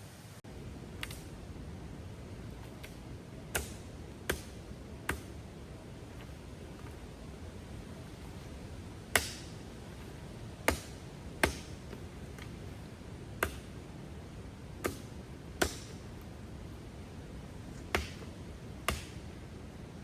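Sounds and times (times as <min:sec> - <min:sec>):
steady background hiss: 0:00.0 - 0:20.0
axe chopping firewood: 0:01.0 - 0:01.3, 0:02.6 - 0:05.5, 0:08.2 - 0:12.6, 0:13.4 - 0:13.8, 0:14.8 - 0:16.1, 0:17.7 - 0:19.3.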